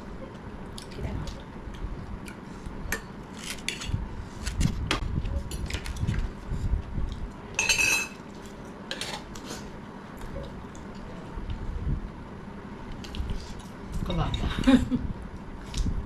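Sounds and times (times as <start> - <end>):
cutlery clinking against dishes: 7.6 - 8.2.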